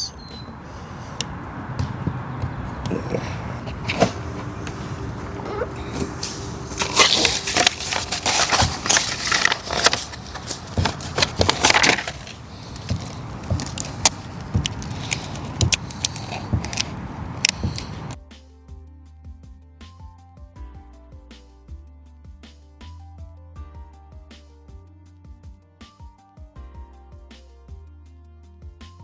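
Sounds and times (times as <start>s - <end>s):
material crinkling and rustling: 2.9s - 18.2s.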